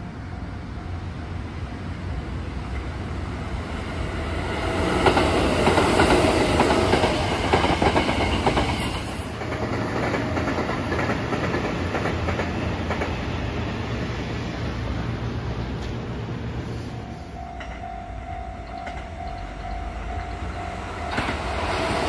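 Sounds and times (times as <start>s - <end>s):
distant train rumble: 0.0s - 22.0s
train wheels clattering: 4.8s - 13.3s, 18.6s - 22.0s.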